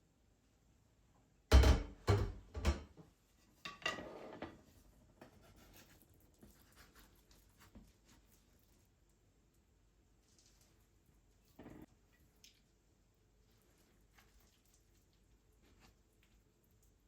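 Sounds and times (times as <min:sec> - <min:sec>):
dishes clattering: 0:01.5 - 0:03.0.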